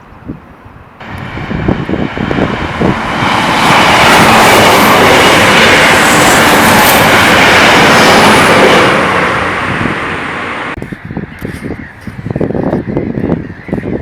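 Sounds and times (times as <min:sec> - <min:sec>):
passing train rushing: 0:01.0 - 0:10.8.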